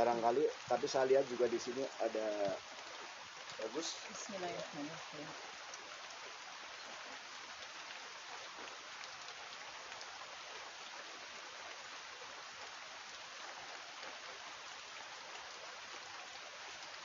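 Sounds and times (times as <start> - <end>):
faint ticks of raindrops: 0.0 - 17.0
rain hissing: 0.0 - 17.0.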